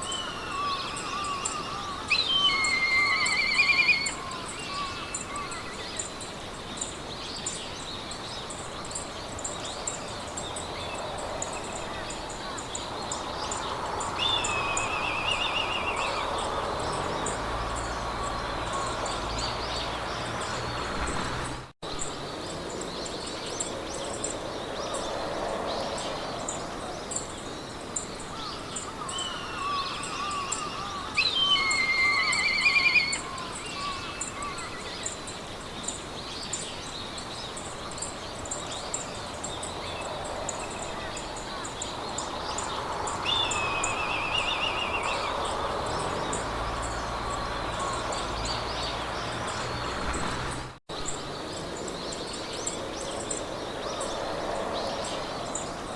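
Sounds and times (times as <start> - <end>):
songbirds chirping and singing: 0.0 - 55.9
wind through grass: 0.0 - 55.9.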